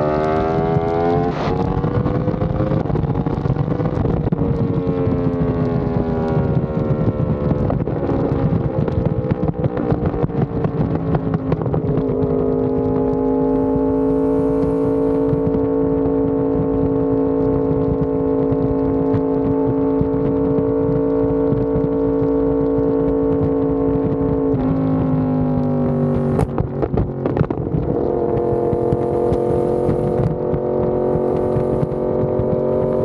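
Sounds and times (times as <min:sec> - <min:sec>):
motorcycle engine running: 0:00.0 - 0:33.0
sharp exhaust crack: 0:26.1 - 0:33.0.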